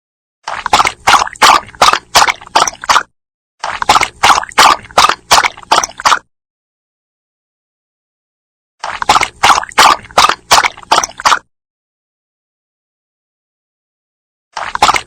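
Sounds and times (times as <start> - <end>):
dog lapping water: 0.5 - 6.3, 8.8 - 11.5, 14.6 - 15.0.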